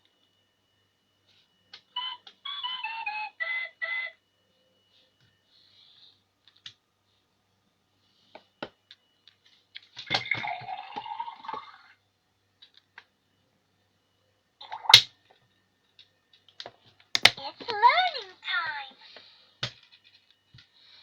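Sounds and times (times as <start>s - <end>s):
toy pouring sound effect: 10.2s - 12.0s
plastic clicks from handling: 16.0s - 17.4s.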